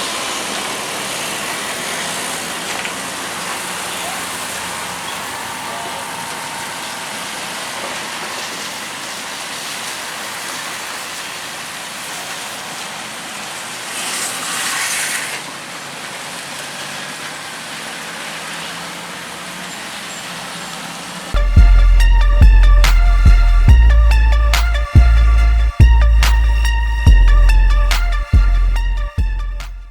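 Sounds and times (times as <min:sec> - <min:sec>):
road traffic noise: 0:00.0 - 0:29.9
music with heavy beat: 0:21.4 - 0:29.9.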